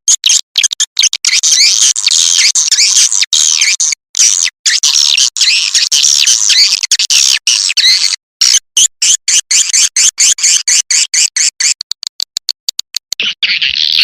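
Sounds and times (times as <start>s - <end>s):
short high chirps and clicks: 7.4s - 14.0s
swiftlet calls: 9.0s - 14.0s.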